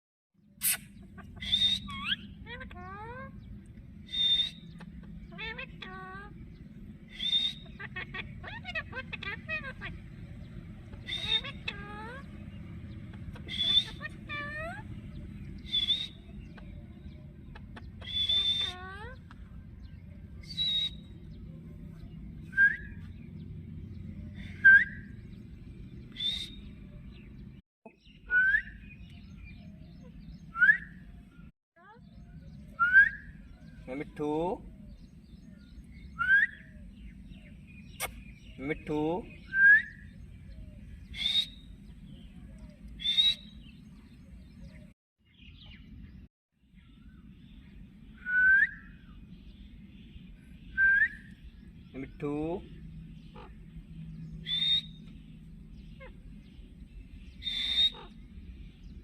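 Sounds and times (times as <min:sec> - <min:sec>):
faint chirp: 0:00.5 - 0:59.0
steady low hum: 0:00.7 - 0:27.6, 0:28.7 - 0:45.0, 0:45.6 - 0:59.0
parrot rising whistles: 0:04.1 - 0:04.7, 0:24.5 - 0:25.1, 0:26.2 - 0:26.7, 0:43.0 - 0:43.5, 0:48.2 - 0:49.0, 0:54.4 - 0:55.0
parrot squawks: 0:07.5 - 0:10.0, 0:11.0 - 0:12.3, 0:13.3 - 0:14.9, 0:17.5 - 0:19.2, 0:57.4 - 0:58.2
rising whistle: 0:54.4 - 0:55.0.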